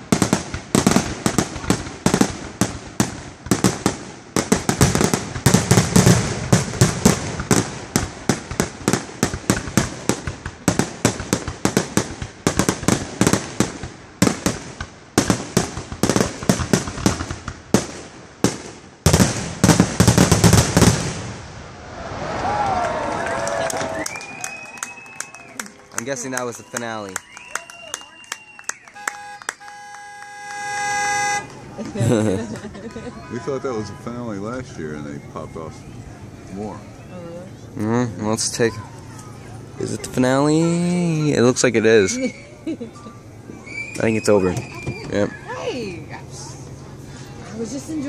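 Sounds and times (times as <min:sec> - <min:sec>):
fireworks crackle: 0:00.0 - 0:35.0.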